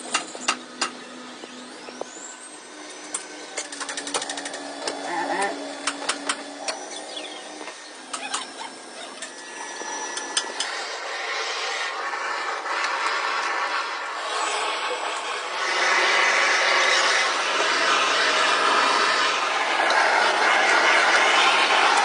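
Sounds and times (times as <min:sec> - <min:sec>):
even hiss: 0:00.0 - 0:22.0
sharp mechanical clicks: 0:03.0 - 0:10.8.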